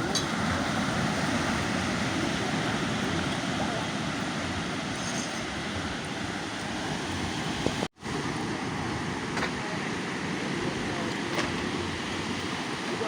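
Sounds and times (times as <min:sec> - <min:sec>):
surf rushing: 0:00.0 - 0:13.0
wind: 0:00.0 - 0:13.0.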